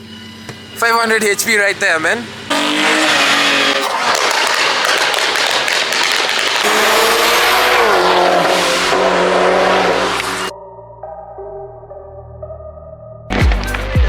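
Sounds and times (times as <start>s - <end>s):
car engine revving: 2.5s - 10.5s
crackling exhaust: 2.5s - 10.5s.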